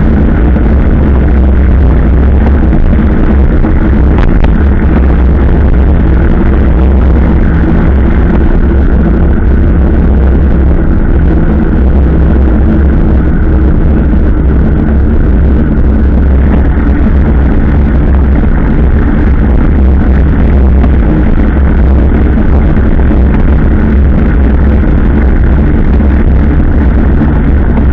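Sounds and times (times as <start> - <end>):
motorcycle engine droning: 0.0 - 27.9.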